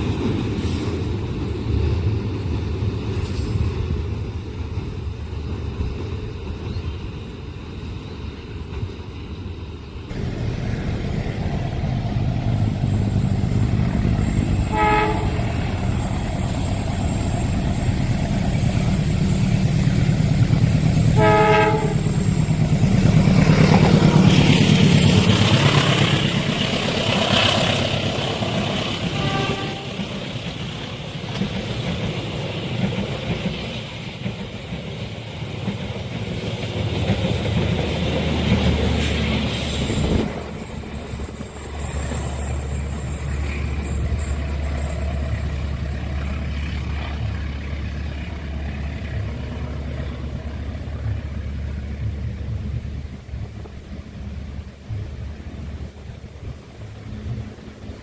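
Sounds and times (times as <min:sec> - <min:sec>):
train rumbling on rails: 0:00.0 - 0:58.0
train horn blasts: 0:14.4 - 0:15.8, 0:21.0 - 0:22.4, 0:29.0 - 0:30.1.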